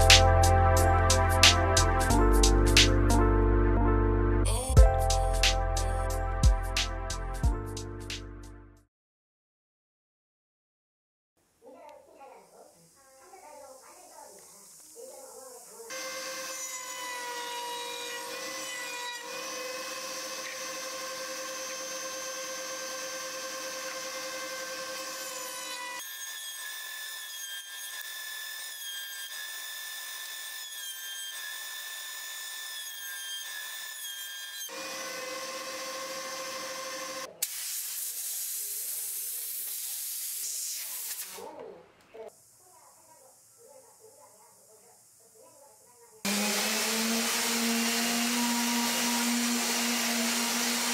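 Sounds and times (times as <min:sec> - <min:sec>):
power tool motor whine: 0:15.9 - 0:28.6, 0:34.6 - 0:37.6, 0:46.3 - 0:50.9.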